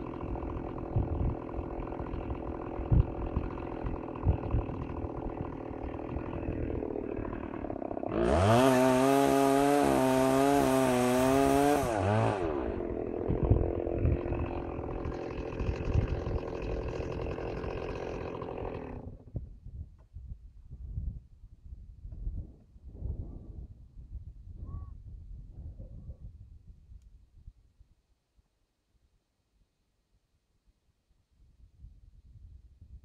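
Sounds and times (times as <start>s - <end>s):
chainsaw revving: 0.0s - 19.3s.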